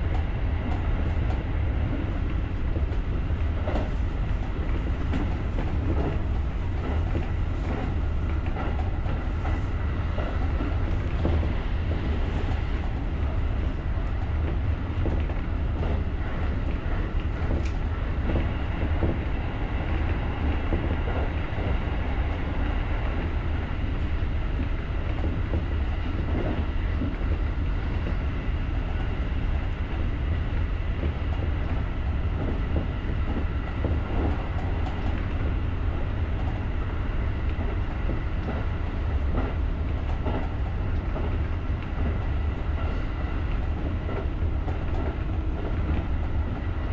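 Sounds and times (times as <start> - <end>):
train wheels rumbling on rail: 0.0 - 46.9.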